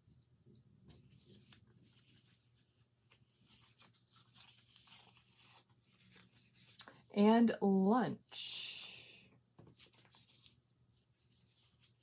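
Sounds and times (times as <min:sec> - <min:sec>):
cards rustling and ticking: 0:00.8 - 0:07.1, 0:09.6 - 0:12.0.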